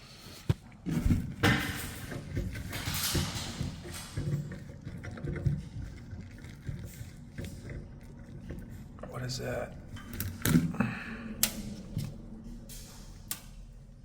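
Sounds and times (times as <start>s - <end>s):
clicks and knocks in garbage disposal: 0.5s - 9.0s.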